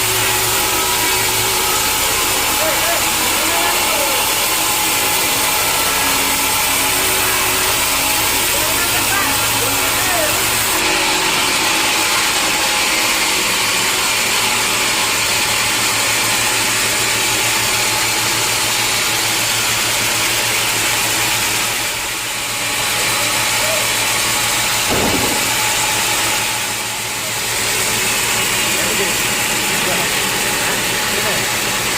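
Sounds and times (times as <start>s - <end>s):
sawmill machinery running: 0.0s - 31.9s.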